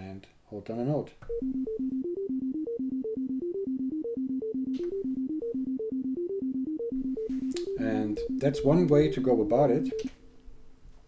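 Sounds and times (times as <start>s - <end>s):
synthesizer step-sequencer pattern: 1.3s - 10.1s.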